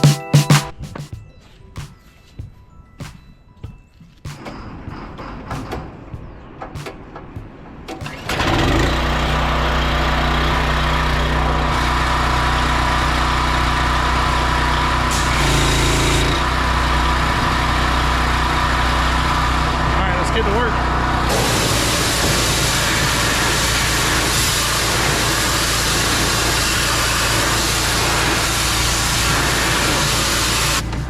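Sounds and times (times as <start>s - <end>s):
excavator diesel engine running: 8.0s - 31.0s.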